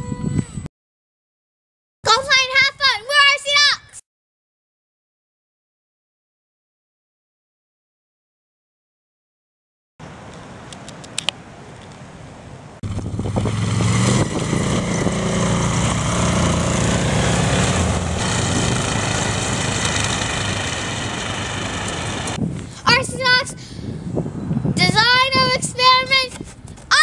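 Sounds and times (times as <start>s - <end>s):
electric motor and propeller whine: 12.8s - 22.4s.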